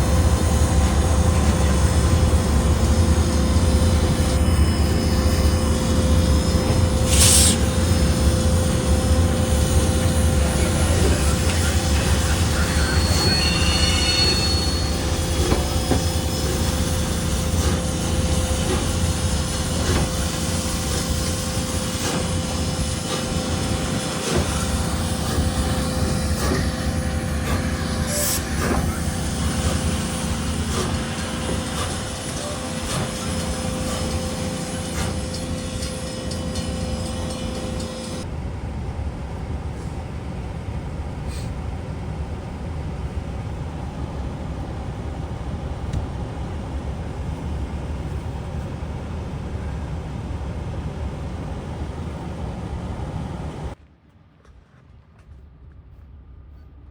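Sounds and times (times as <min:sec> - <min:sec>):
train wheels rumbling on rail: 0:00.0 - 0:56.9
high wheel squeal: 0:01.1 - 0:38.2.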